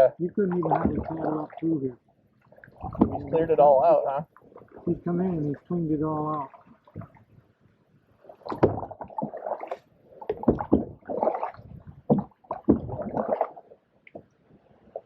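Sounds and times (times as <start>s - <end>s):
paddle splashing in water: 0.0s - 1.7s, 2.4s - 7.4s, 8.2s - 14.2s.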